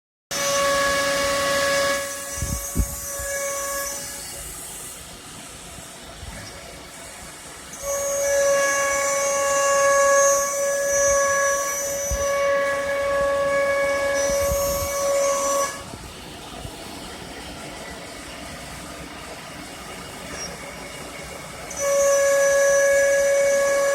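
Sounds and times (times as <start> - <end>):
cutting hiss: 0.4 - 18.9
router spindle whine: 7.7 - 15.9.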